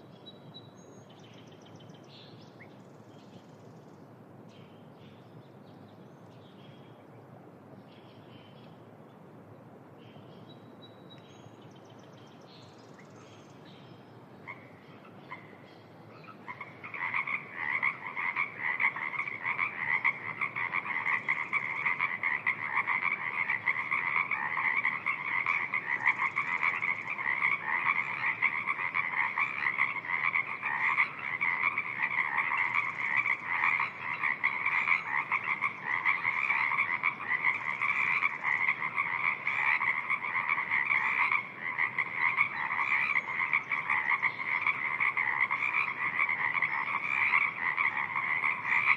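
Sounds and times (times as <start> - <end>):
faint bird chirps and trills: 0.0 - 48.9
steady background hiss: 0.0 - 48.9
frog croaks: 14.4 - 48.9.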